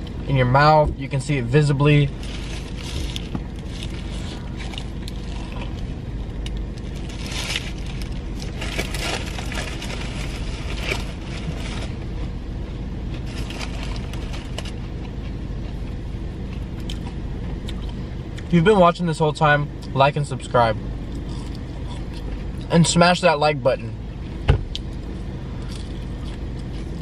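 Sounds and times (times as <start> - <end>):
low rumble inside car: 0.0 - 27.0
chewing crispy food: 2.1 - 18.5, 21.1 - 22.7, 24.7 - 27.0.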